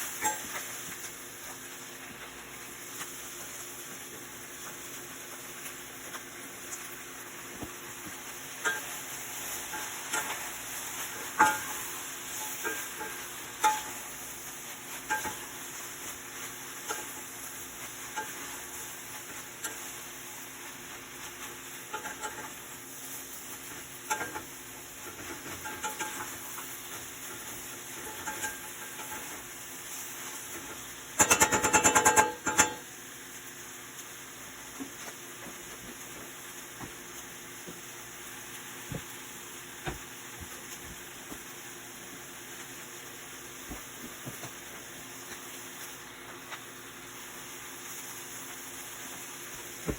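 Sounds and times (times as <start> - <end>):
food sizzling in a pan: 0.0 - 49.9
utensil knocking against pan: 31.2 - 32.8.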